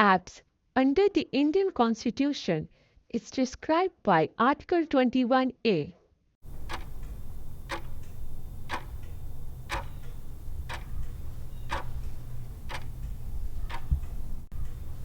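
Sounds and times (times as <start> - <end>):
clock ticking: 6.4 - 14.9
steady low hum: 6.4 - 15.0.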